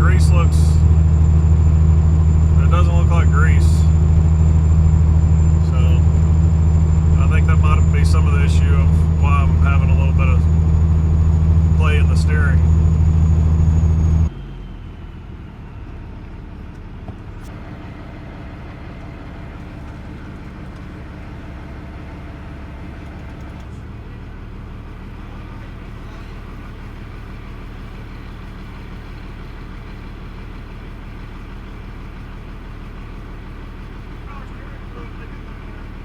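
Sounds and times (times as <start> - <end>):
road noise drone: 0.0 - 20.4
diesel truck engine hum: 0.0 - 36.0.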